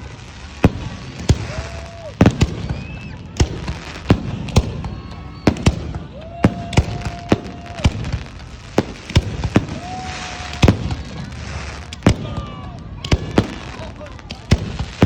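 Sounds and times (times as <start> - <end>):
fireworks bangs: 0.0 - 15.0
fireworks crackling: 0.0 - 15.0
steady whistling tone: 2.6 - 3.3.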